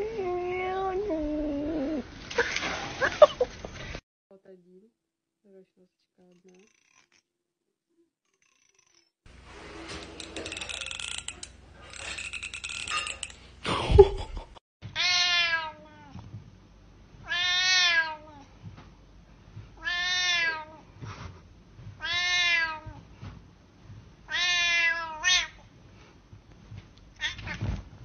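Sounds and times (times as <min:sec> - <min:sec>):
cat meowing loudly: 0:15.0 - 0:16.2, 0:17.2 - 0:18.3, 0:19.8 - 0:20.8, 0:22.0 - 0:23.0, 0:24.3 - 0:25.6.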